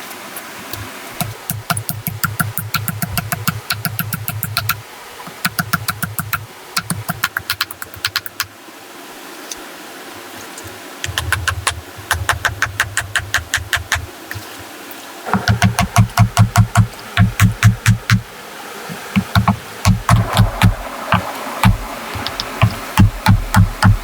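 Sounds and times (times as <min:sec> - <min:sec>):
rapid rhythmic knocking: 0:01.2 - 0:08.5, 0:11.0 - 0:14.1, 0:15.3 - 0:18.3, 0:19.1 - 0:24.0.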